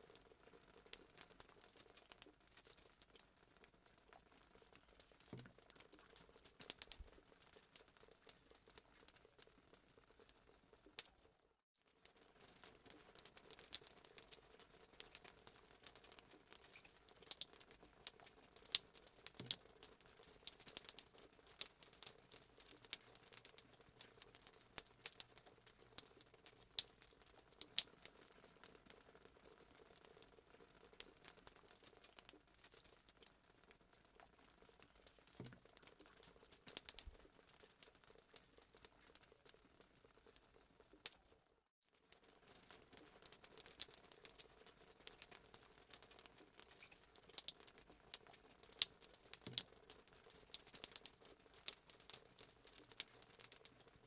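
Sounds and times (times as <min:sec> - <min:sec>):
sharp pops and snaps: 0:12.0 - 0:41.3, 0:42.0 - 0:54.0.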